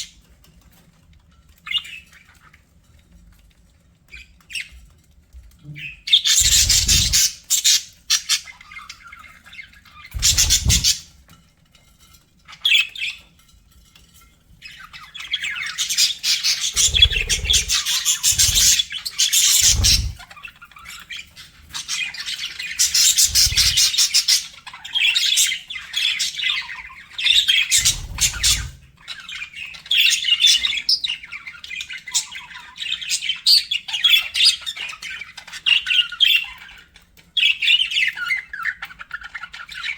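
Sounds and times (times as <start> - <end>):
budgerigars chattering and squawking: 5.7 - 11.1, 14.6 - 39.9.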